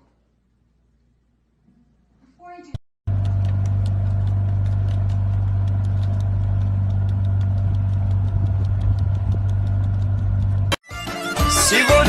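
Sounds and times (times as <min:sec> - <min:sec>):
engine idling: 0:03.1 - 0:10.8.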